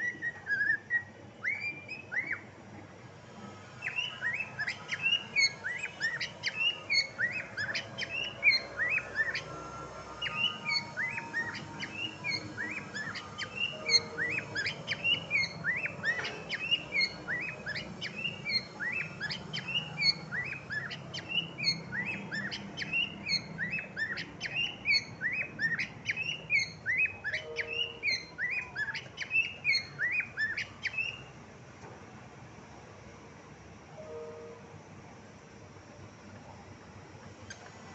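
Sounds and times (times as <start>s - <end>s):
cockatiel chirping: 0.0s - 2.4s, 3.8s - 31.2s.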